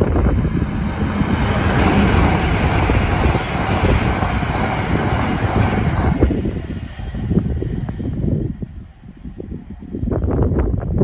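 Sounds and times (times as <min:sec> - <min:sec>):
high-speed train passing: 0:00.0 - 0:11.0.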